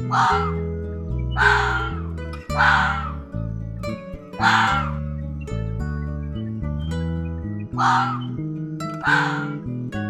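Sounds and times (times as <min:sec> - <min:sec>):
bird harsh caw-like calls: 0:00.0 - 0:00.6, 0:01.3 - 0:03.3, 0:04.4 - 0:05.0, 0:07.8 - 0:08.4, 0:09.0 - 0:09.7
background music held chords: 0:00.0 - 0:10.0.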